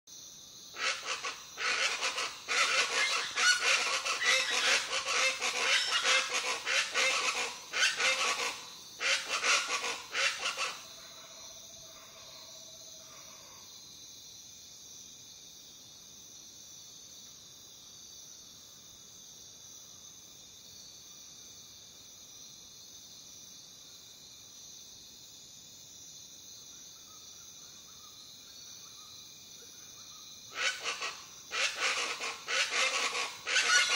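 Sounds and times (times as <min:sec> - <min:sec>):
crickets droning: 0:00.1 - 0:33.9
jungle birds calling: 0:00.8 - 0:11.0, 0:30.5 - 0:33.9.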